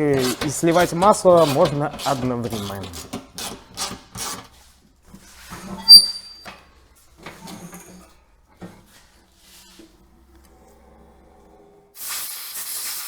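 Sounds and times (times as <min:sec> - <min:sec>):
tools and parts being handled: 0:00.0 - 0:09.9.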